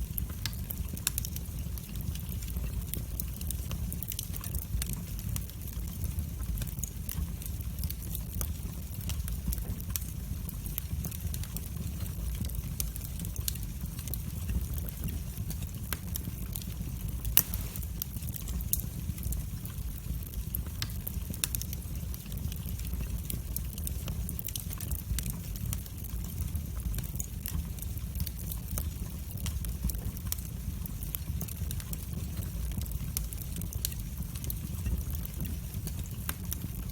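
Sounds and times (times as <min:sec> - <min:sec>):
fire crackling: 0:00.0 - 0:36.9
fire rumbling in fireplace: 0:00.0 - 0:36.9
loud fire pop: 0:17.4 - 0:18.0.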